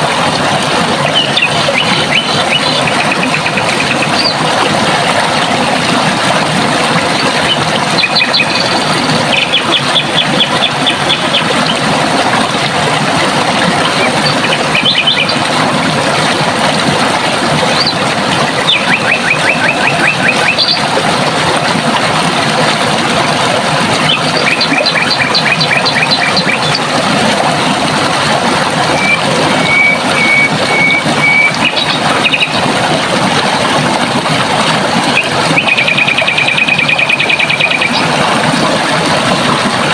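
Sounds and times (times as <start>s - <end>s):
water rushing: 0.0s - 39.9s
birds trilling: 1.0s - 4.5s, 7.2s - 11.8s, 13.8s - 15.4s
bird whistled notes: 29.0s - 32.4s.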